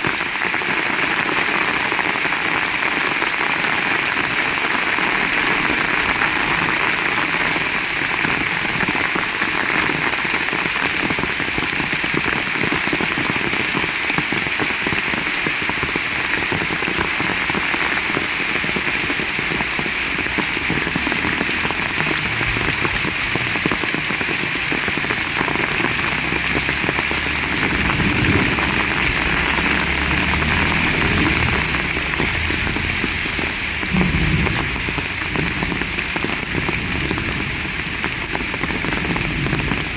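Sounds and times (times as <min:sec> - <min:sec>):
heavy rain hissing: 0:00.0 - 0:39.9
low rumble: 0:19.6 - 0:38.1.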